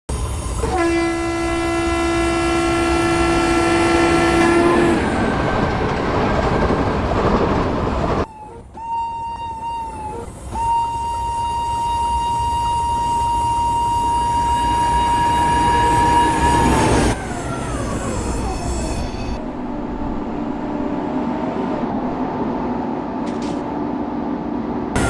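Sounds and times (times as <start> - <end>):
train rumble and clatter: 0.1 - 25.0
train horn blast: 0.6 - 5.2, 8.7 - 17.2.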